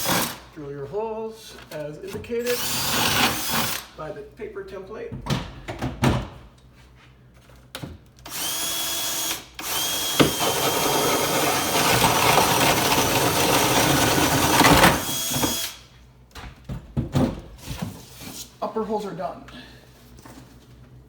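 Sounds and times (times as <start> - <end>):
power drill drilling into wall: 0.0 - 0.4, 2.5 - 3.9, 8.3 - 15.8.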